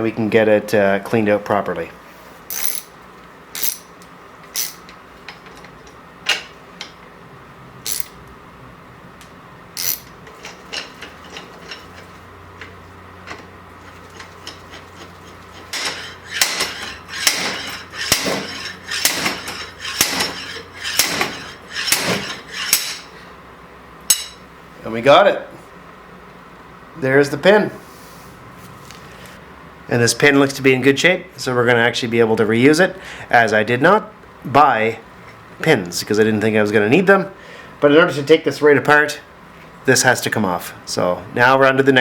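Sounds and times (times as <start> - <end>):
metal tools clinking: 2.5 - 2.9, 3.6 - 3.9, 9.8 - 12.1, 15.6 - 23.1
slide hammer blows on metal: 15.7 - 23.2.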